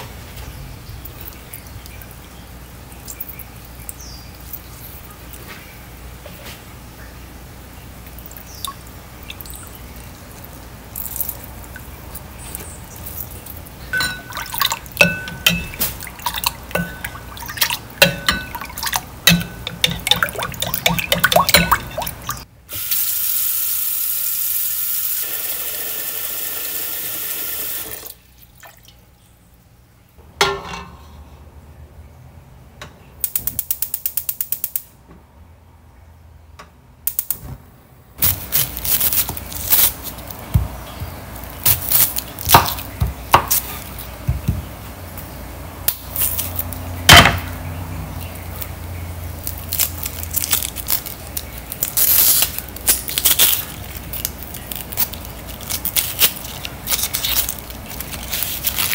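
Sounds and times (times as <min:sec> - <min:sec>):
clinks against ceramic bowl: 0:14.0 - 0:15.9, 0:16.7 - 0:22.4
tap water running into pot: 0:14.0 - 0:22.4.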